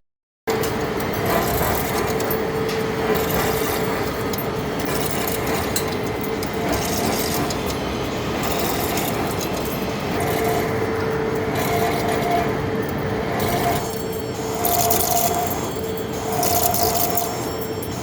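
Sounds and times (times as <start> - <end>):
high machine tone: 0.5 - 18.0
steady mid-pitched machine tone: 0.5 - 18.0
lathe cutting steel: 0.6 - 18.0.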